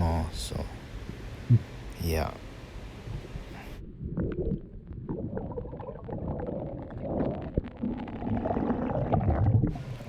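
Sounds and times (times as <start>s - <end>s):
low underwater rumble: 3.1s - 10.0s.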